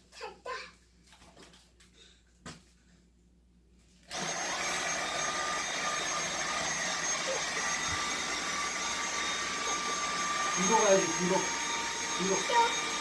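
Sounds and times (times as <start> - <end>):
vacuum cleaner running: 4.1 - 13.0.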